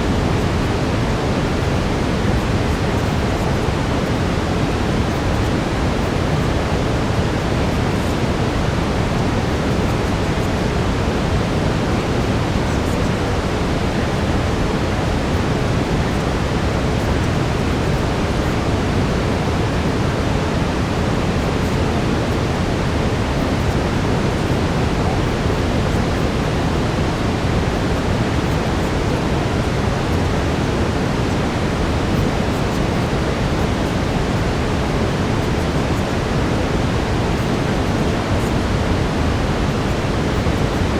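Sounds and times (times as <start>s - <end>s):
brown noise hiss: 0.0s - 40.9s.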